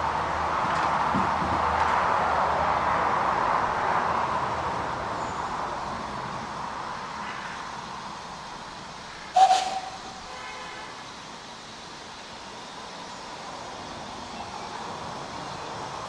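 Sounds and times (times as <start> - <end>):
steam train running: 8.0 - 16.0
sharp sound with hooting tone: 9.3 - 10.4.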